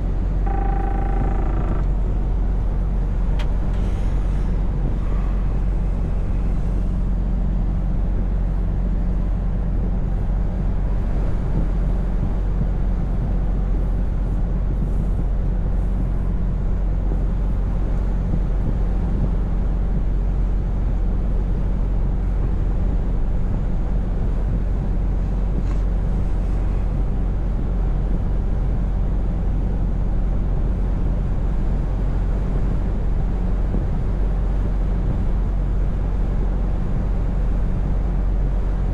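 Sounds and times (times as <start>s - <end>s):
truck engine humming: 0.0s - 12.0s
road noise: 0.0s - 38.9s.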